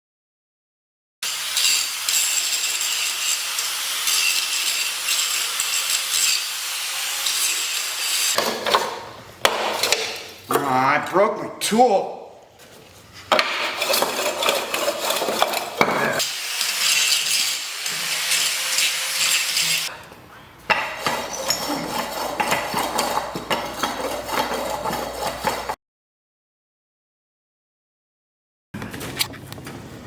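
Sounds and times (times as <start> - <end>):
metal tools clinking: 21.0 - 23.2.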